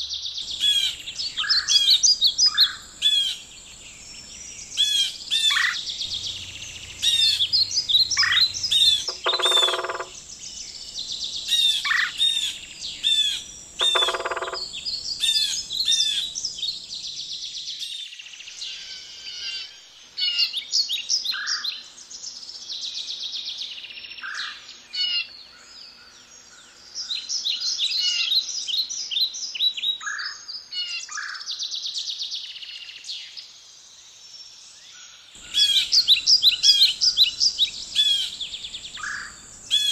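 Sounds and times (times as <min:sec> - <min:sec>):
wild birds chirping and singing: 0:00.0 - 0:39.9
low bird call: 0:00.4 - 0:17.0, 0:35.4 - 0:39.9.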